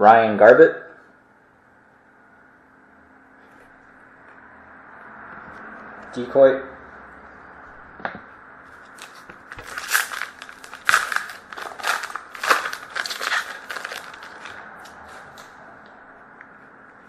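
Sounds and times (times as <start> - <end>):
wrapper tearing and crinkling: 8.9 - 15.5.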